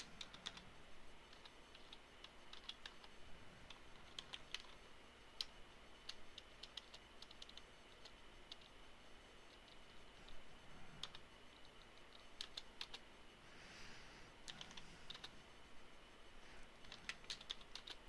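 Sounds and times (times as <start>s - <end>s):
typing on computer keyboard: 0.0s - 0.6s, 1.3s - 3.1s, 3.7s - 4.8s, 5.4s - 8.8s, 11.0s - 13.0s, 14.4s - 15.3s, 16.8s - 18.0s.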